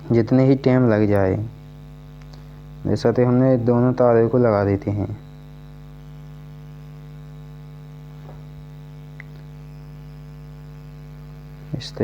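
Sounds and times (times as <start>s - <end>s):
electrical mains hum: 0.0s - 12.0s
faint ticks: 2.2s - 2.5s.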